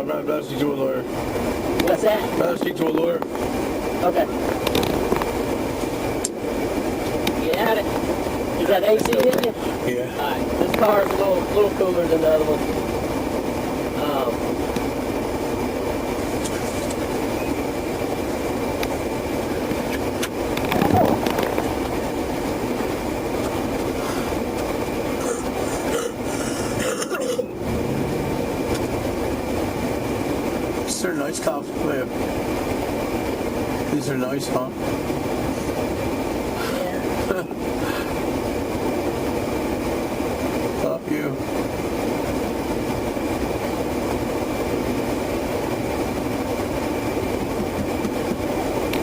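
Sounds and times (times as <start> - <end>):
air conditioning blowing: 0.0 - 49.0
car cabin noise: 1.5 - 13.5, 14.4 - 33.3.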